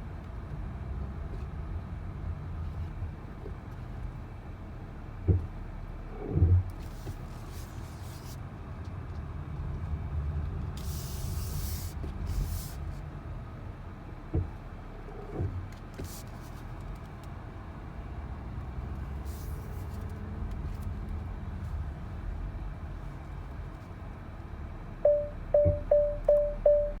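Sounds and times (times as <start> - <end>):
car road and drivetrain rumble: 0.0 - 27.0
short hissing noises: 10.8 - 12.8.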